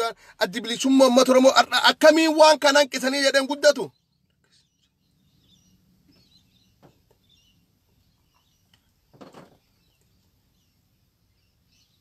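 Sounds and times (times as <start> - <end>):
faint bird chirps: 3.8 - 12.0.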